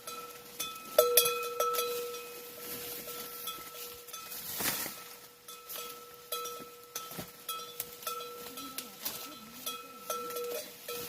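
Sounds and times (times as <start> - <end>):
metallic clinks ringing like a bell: 5.5 - 11.0.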